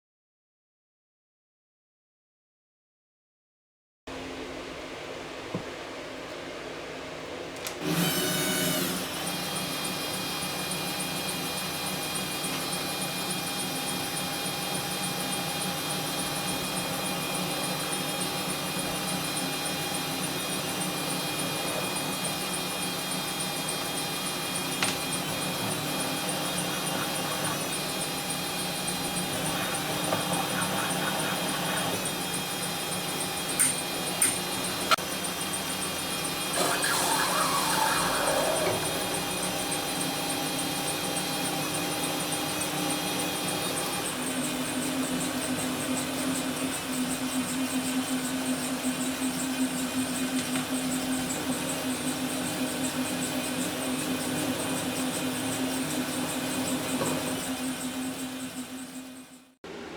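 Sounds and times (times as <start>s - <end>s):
power tool motor whining: 7.8s - 35.0s, 35.8s - 41.0s.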